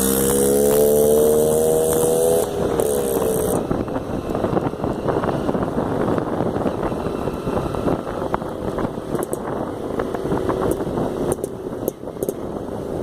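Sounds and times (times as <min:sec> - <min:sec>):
motorcycle engine rumble: 0:00.0 - 0:13.0
sharp clicks: 0:09.1 - 0:09.5, 0:10.7 - 0:12.4.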